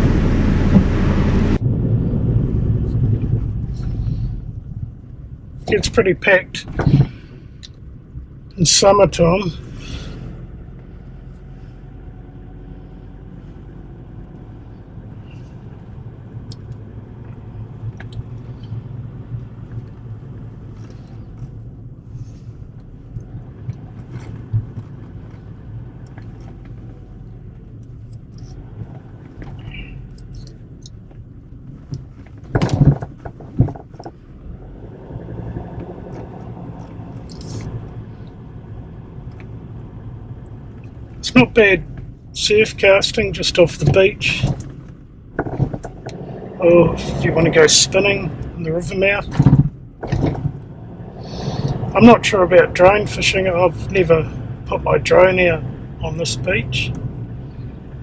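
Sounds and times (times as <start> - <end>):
engine and road rumble in car: 0.0 - 58.0
small rattles and clicks: 22.8 - 34.2, 44.4 - 46.2.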